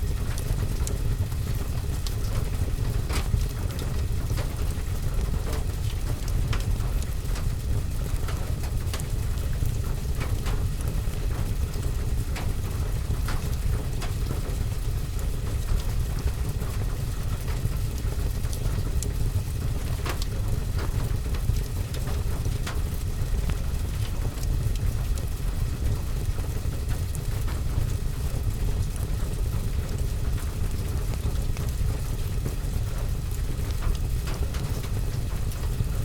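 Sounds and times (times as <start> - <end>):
steady rain: 0.0 - 36.0
wood fire crackling and popping: 17.4 - 36.0.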